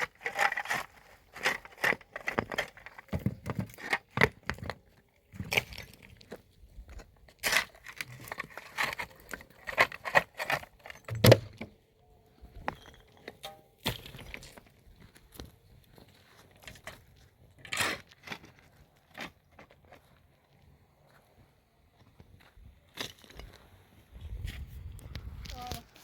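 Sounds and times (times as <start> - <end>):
hard objects knocking and clattering: 0.2 - 4.8, 8.2 - 11.7.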